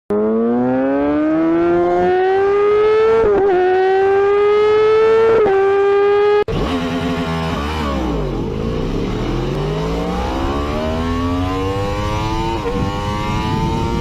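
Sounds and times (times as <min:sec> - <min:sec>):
motorcycle engine accelerating hard: 0:00.1 - 0:14.0.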